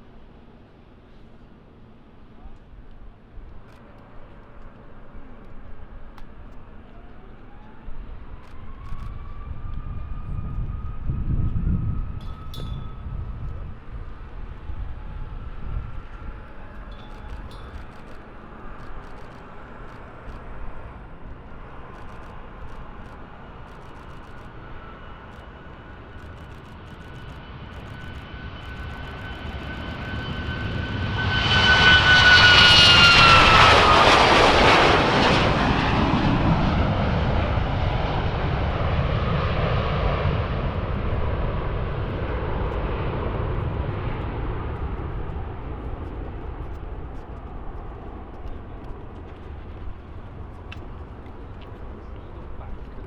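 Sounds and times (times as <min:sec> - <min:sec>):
aircraft engines whine and rumble: 0:00.0 - 0:53.0.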